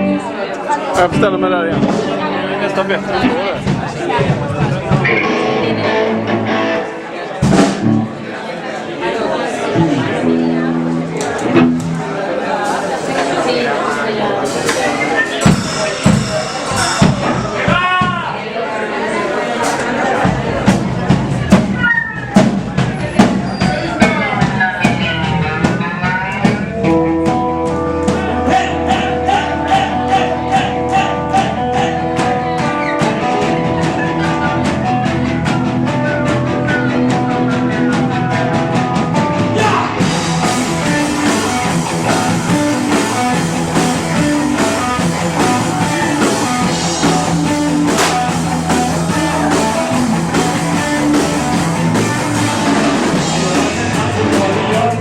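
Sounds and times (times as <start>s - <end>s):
sustained guitar notes: 0.0s - 18.4s, 19.8s - 55.0s
rock band playing live: 0.0s - 55.0s
steady drum beat: 0.9s - 6.8s, 7.4s - 8.2s, 9.8s - 18.4s, 19.6s - 55.0s.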